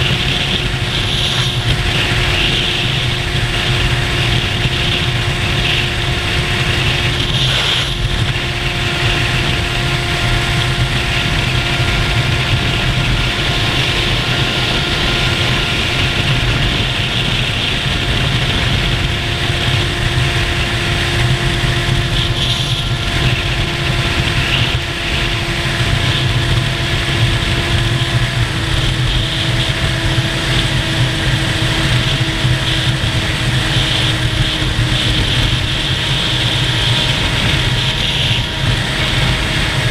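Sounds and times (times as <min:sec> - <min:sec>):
motorcycle engine cruising: 0:00.0 - 0:39.9
wind noise: 0:00.0 - 0:39.9.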